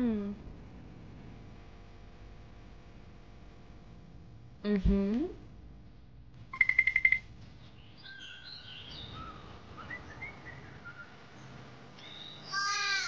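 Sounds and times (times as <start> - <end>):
harsh animal call: 12.5 - 13.0.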